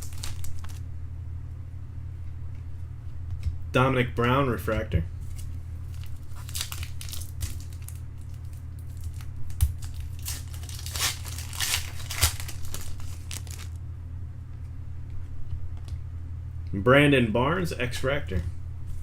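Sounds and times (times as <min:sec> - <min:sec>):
wrapper tearing and crinkling: 0:00.0 - 0:00.8, 0:05.3 - 0:13.8
steady low hum: 0:00.0 - 0:19.0.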